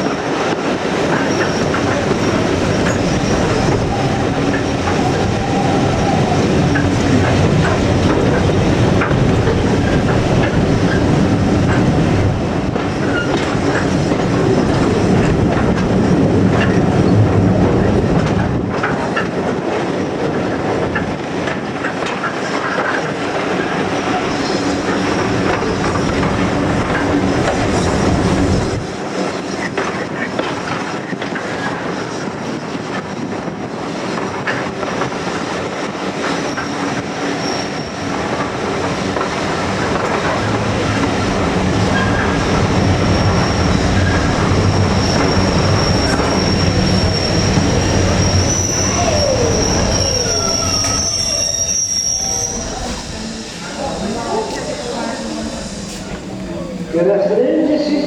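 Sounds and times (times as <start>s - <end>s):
wheels clickety-clack over rail joints: 0.0s - 57.0s
train carriage rumble: 0.0s - 58.0s
wheel squeal: 1.1s - 7.8s, 13.0s - 15.1s, 36.3s - 38.4s, 39.8s - 57.0s.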